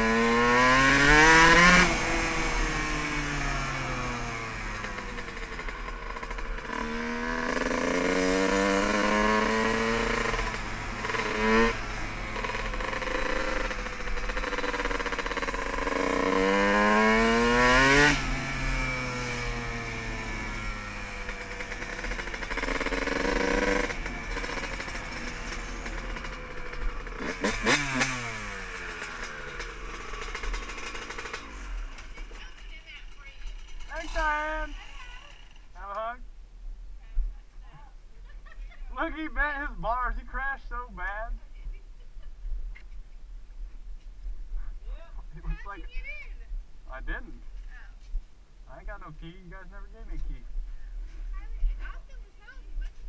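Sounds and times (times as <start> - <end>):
dirt bike engine revving: 0.0 - 36.2.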